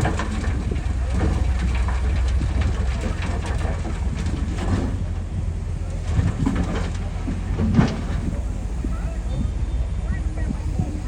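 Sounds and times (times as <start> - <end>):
diesel engine rumble: 0.0 - 11.0
machinery clanking and rattling: 0.0 - 11.0.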